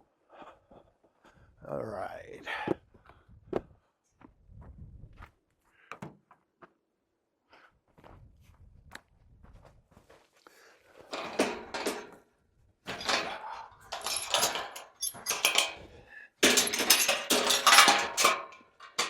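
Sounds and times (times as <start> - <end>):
metal clattering and banging: 11.1 - 12.2, 12.9 - 19.0.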